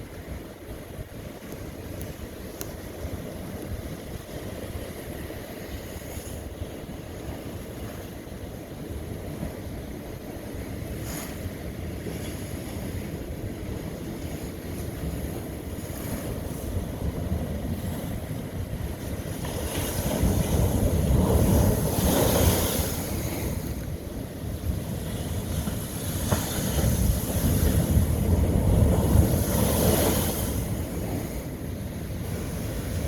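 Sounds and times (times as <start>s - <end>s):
ocean waves breaking on rock: 0.0s - 33.0s
wind buffeting microphone: 0.0s - 33.0s.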